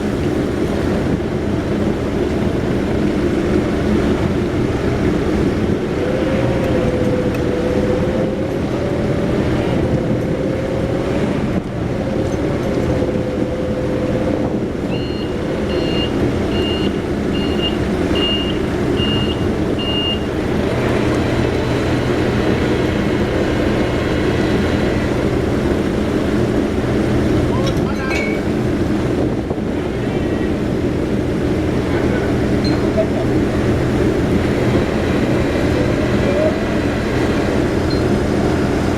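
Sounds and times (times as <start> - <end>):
heavy machinery engine: 0.0 - 38.9
warning beeps: 14.9 - 20.3.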